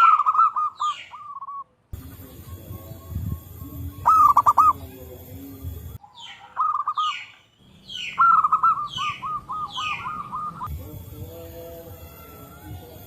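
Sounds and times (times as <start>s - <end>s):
bird falling calls: 0.0s - 1.7s, 6.0s - 10.7s
doves cooing: 0.0s - 10.7s.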